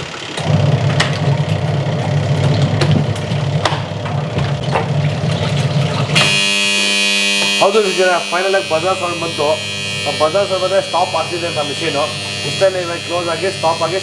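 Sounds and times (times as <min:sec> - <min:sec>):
washing machine buzzer: 0:00.0 - 0:14.0
washing machine motor humming: 0:00.0 - 0:14.0
shoes knocking in drum: 0:00.4 - 0:06.4.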